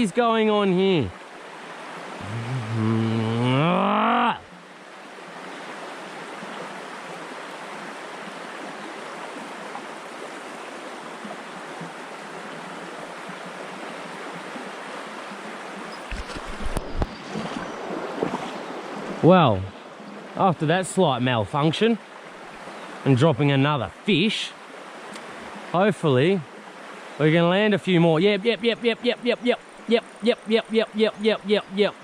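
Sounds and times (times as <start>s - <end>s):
river water rushing: 0.0s - 20.4s, 21.7s - 32.0s
long low rising call: 2.2s - 4.4s.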